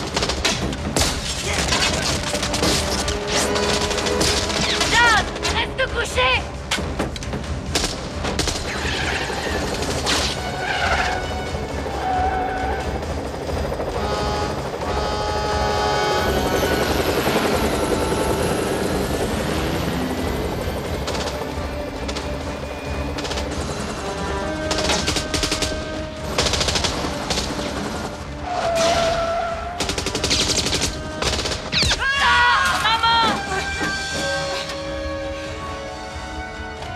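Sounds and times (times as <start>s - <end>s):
helicopter rotor chopping: 0.0s - 28.5s
film score music: 0.0s - 36.9s.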